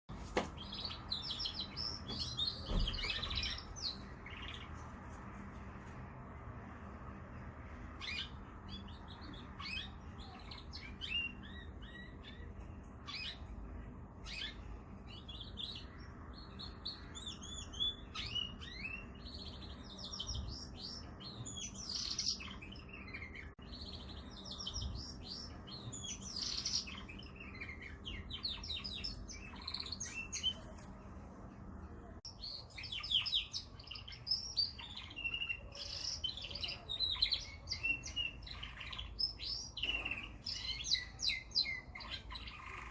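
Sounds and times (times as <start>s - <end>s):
canary singing: 0.6s - 5.0s, 7.0s - 30.9s, 32.2s - 42.9s.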